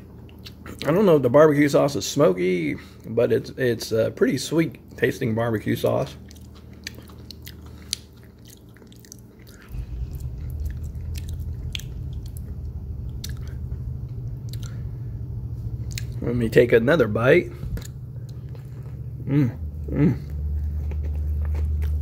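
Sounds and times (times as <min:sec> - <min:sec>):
low steady hum: 0:00.0 - 0:22.0
person chewing crispy food: 0:06.1 - 0:15.1, 0:15.7 - 0:16.2, 0:17.5 - 0:22.0.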